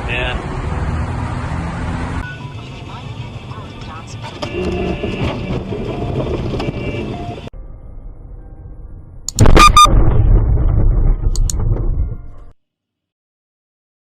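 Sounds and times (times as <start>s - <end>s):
car driving noise: 0.0s - 7.5s
heavy low rumbling: 7.6s - 12.5s
loud crash impact: 9.4s - 12.3s.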